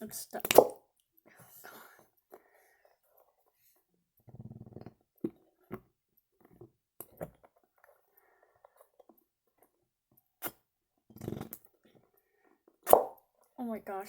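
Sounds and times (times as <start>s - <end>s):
slime toy squelch: 0.0s - 0.8s.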